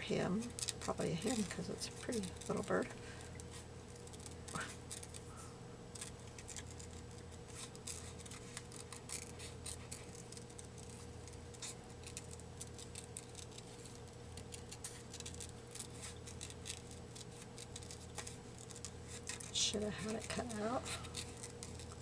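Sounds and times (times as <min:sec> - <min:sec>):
faint steady hum: 0:00.0 - 0:22.0
scissors snipping paper: 0:00.4 - 0:05.2, 0:05.9 - 0:22.0.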